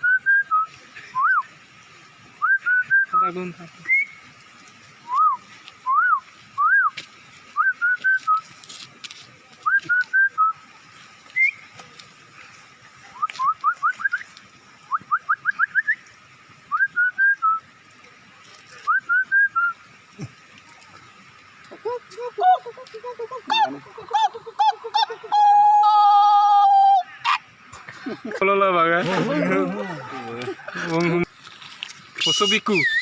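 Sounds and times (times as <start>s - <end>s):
person whistling bird calls: 0.0s - 1.5s, 2.4s - 4.2s, 5.0s - 7.0s, 7.6s - 8.5s, 9.6s - 10.6s, 11.3s - 11.7s, 13.1s - 16.1s, 16.7s - 17.6s, 18.8s - 19.8s, 32.2s - 33.0s.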